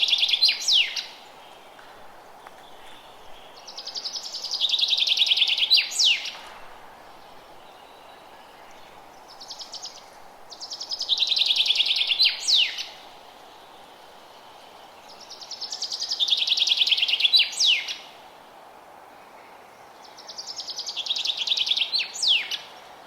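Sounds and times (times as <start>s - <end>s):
songbird trilling song: 0.0s - 1.7s, 2.3s - 6.4s, 7.2s - 13.0s, 14.6s - 18.1s, 20.0s - 22.8s
background hiss: 0.0s - 23.0s.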